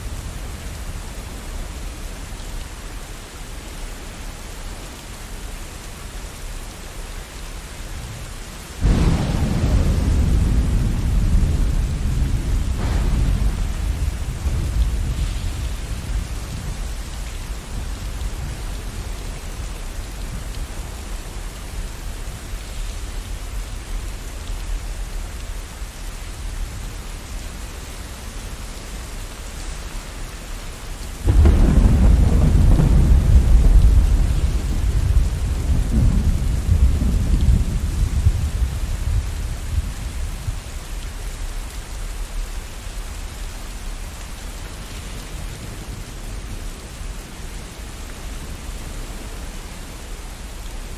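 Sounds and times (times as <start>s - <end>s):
steady rain: 0.0s - 50.9s
loud peal of thunder: 8.8s - 17.1s, 31.2s - 39.3s
low thunder rumble: 8.8s - 27.4s, 30.4s - 40.8s.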